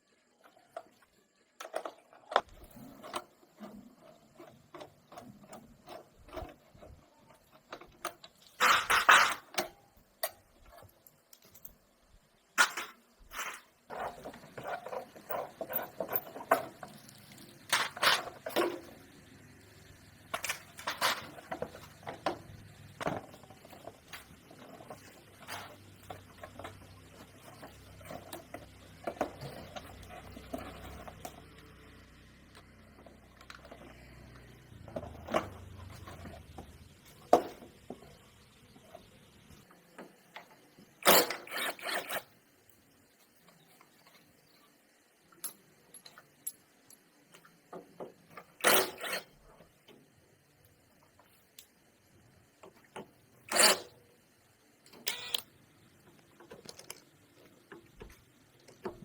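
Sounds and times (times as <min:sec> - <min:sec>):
metallic clicks of hand tools: 0:54.9 - 0:55.5.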